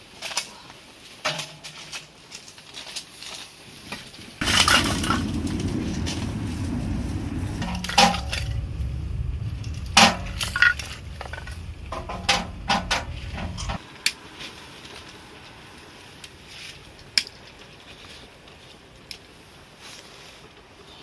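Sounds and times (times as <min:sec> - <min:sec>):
low rumble: 0:04.4 - 0:13.8.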